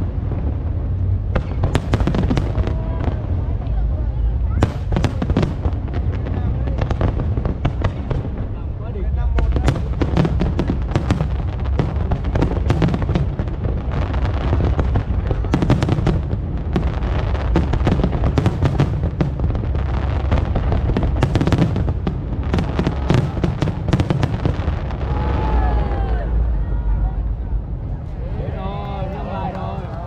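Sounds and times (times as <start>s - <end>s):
fireworks shells crackling and booming: 0.0s - 25.6s
heavy low rumble: 0.0s - 30.0s.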